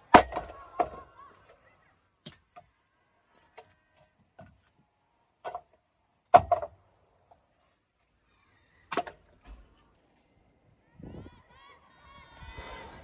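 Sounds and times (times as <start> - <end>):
firewood knocking: 0.1 - 1.0, 5.4 - 6.8.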